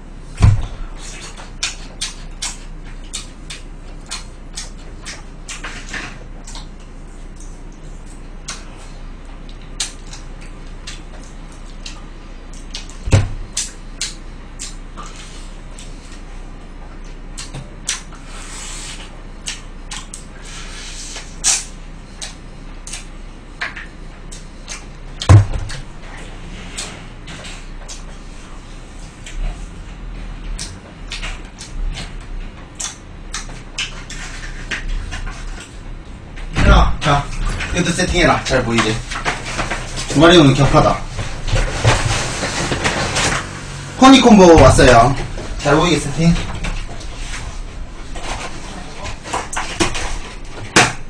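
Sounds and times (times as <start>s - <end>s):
heavy thumps: 0.4s - 0.8s, 35.9s - 51.0s
crunching and chewing: 0.6s - 36.5s.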